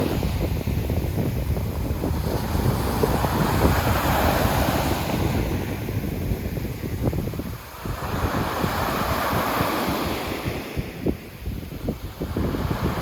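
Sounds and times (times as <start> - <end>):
sea waves breaking on shore: 0.0 - 13.0
wind buffeting microphone: 0.0 - 13.0.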